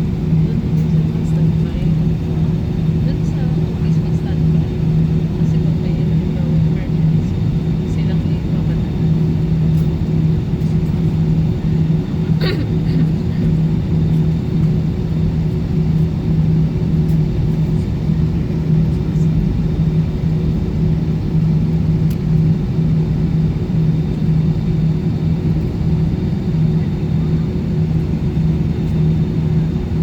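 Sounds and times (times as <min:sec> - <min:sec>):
jet engine cabin rumble: 0:00.0 - 0:30.0.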